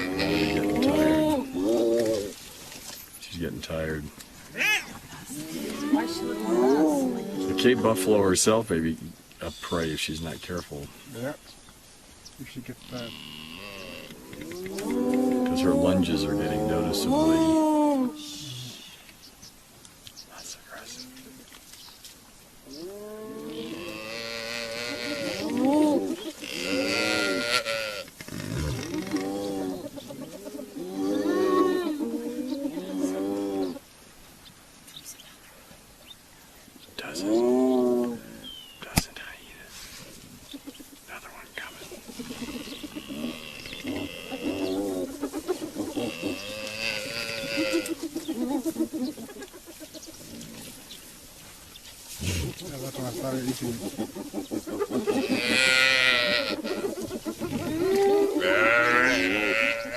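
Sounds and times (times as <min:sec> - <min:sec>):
animals wavering cries: 0:00.0 - 0:02.4, 0:04.6 - 0:08.2, 0:12.8 - 0:19.0, 0:22.7 - 0:33.8, 0:41.3 - 0:50.8, 0:52.7 - 0:59.9.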